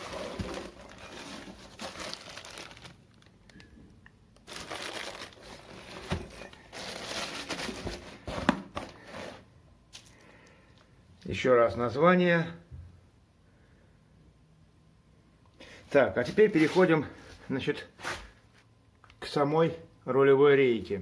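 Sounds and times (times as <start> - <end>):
packaging crinkling: 0.0 - 9.1.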